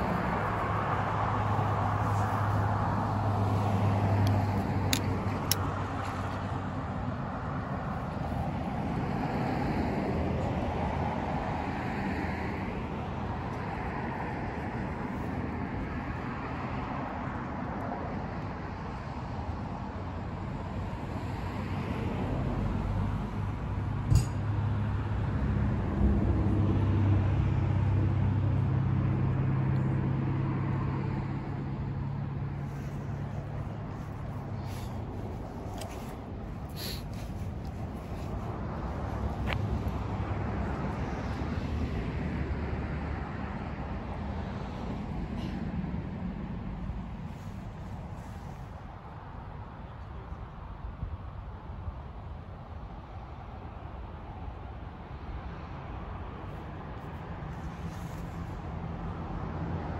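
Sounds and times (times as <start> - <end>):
vehicle engine humming: 0.0 - 17.6, 22.2 - 49.8
road noise: 0.0 - 59.9.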